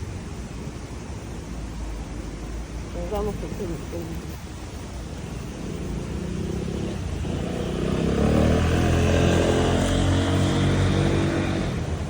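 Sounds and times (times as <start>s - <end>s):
vehicle driving past: 5.4s - 12.0s.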